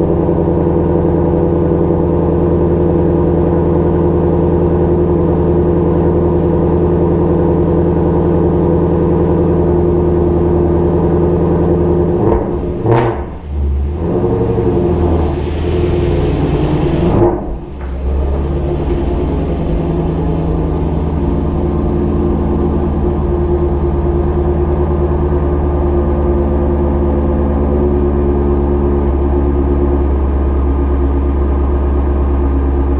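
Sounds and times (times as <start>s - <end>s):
car engine idling: 0.0s - 32.9s.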